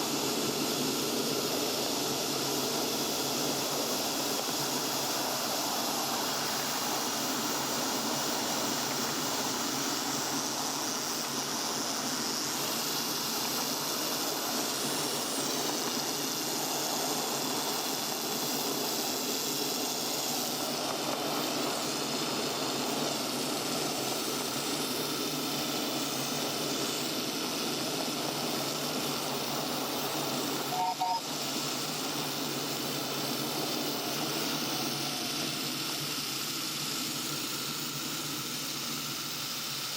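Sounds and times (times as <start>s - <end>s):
miniature steam train hissing: 0.0s - 39.9s
faint two-note chirp: 30.7s - 31.2s.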